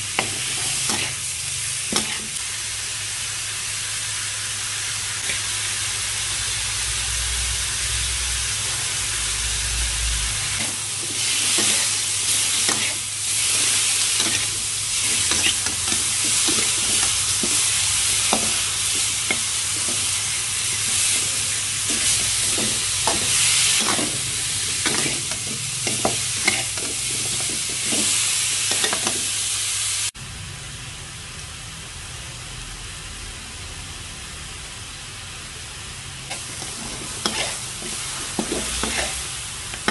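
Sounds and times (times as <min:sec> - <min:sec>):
meat sizzling in a wok: 0:00.0 - 0:39.9
spatula scraping a pan: 0:00.2 - 0:01.2, 0:01.9 - 0:02.4, 0:10.6 - 0:29.2, 0:36.3 - 0:39.9.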